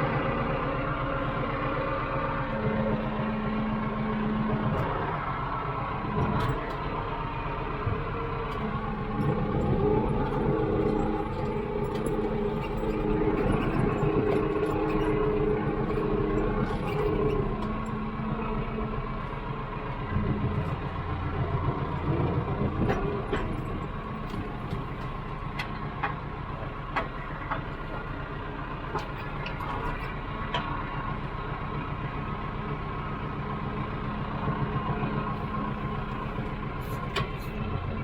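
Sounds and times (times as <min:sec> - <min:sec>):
tractor engine running: 0:00.0 - 0:38.0
deep hum: 0:02.4 - 0:25.5.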